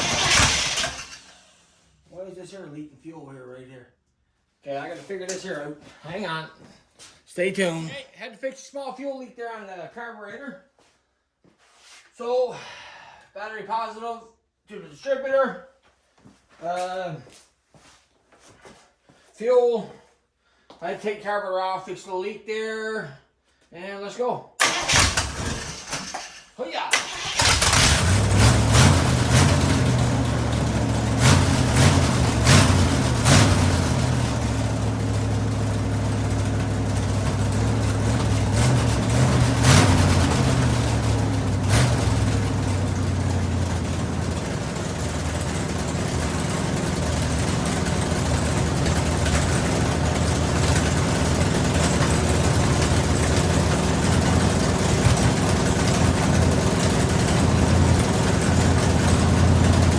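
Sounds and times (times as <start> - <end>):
car engine revving and idling: 0.0 - 1.7, 27.2 - 59.9.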